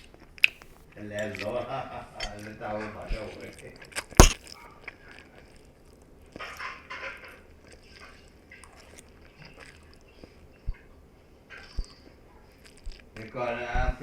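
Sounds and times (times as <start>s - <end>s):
crunchy chewing: 4.2s - 4.4s.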